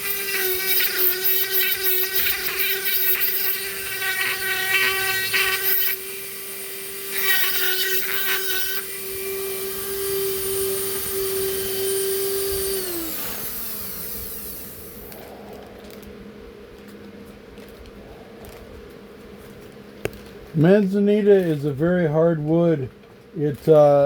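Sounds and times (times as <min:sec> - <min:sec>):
rotary tool whining: 0:00.0 - 0:16.1.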